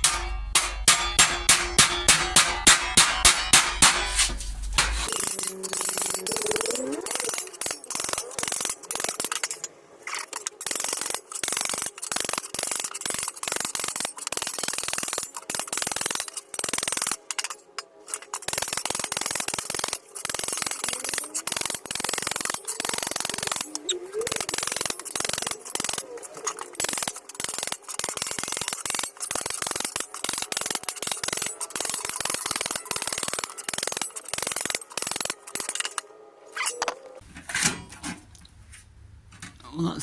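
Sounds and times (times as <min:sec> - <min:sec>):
hammer blows on sheet steel: 0:00.0 - 0:05.1.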